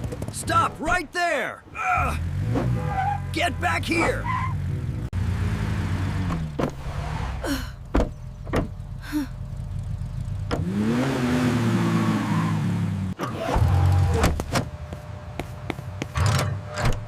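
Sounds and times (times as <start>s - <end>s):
vehicle engine running: 7.5s - 11.7s.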